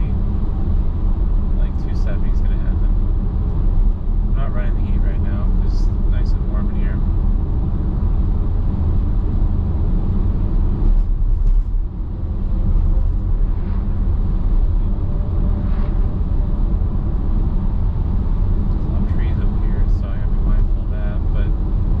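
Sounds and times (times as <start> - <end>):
car tyres and engine rumbling: 0.0 - 22.0.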